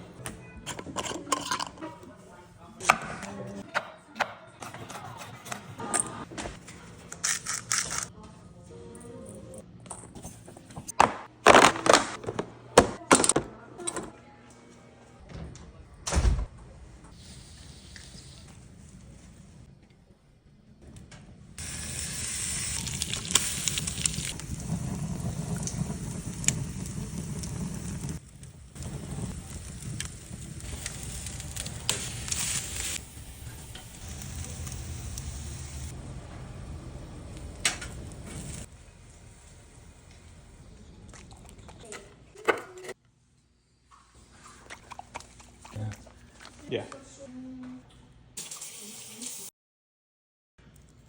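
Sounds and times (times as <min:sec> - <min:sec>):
food sizzling on a grill: 0:21.6 - 0:35.9
hissing: 0:21.6 - 0:36.0.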